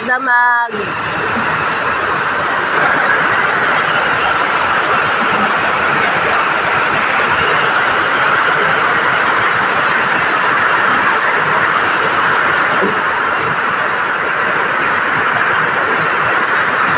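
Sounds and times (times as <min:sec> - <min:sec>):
heavy rain pouring: 0:00.0 - 0:16.9.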